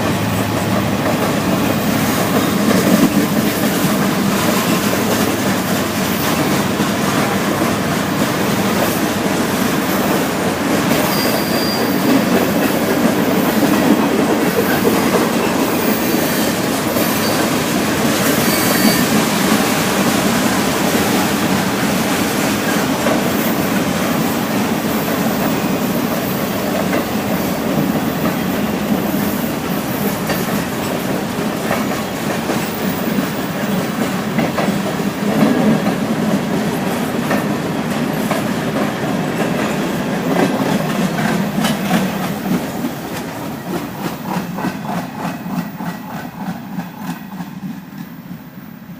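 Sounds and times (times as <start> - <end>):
train wheels rumbling on rail: 0.0 - 48.9
high wheel squeals: 11.0 - 12.3, 15.4 - 17.6, 18.2 - 19.3.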